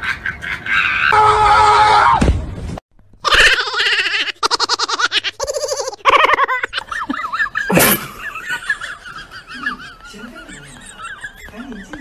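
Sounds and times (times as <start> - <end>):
person laughing hard: 3.3 - 12.0.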